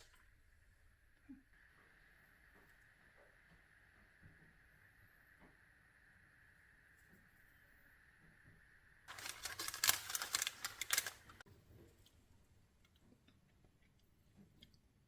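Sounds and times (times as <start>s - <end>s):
quick clicks and crackles: 9.1s - 11.4s.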